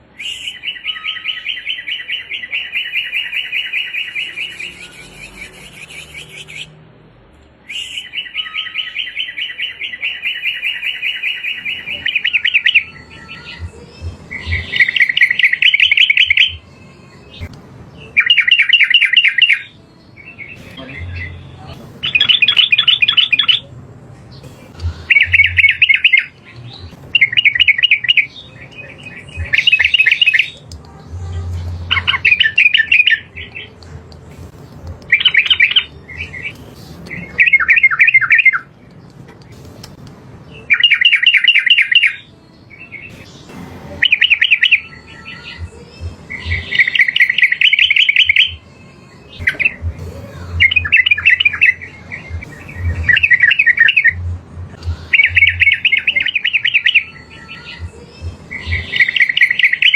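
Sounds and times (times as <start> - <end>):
bulbul bubbling song: 7.7 - 23.7, 24.3 - 45.1, 49.4 - 59.9.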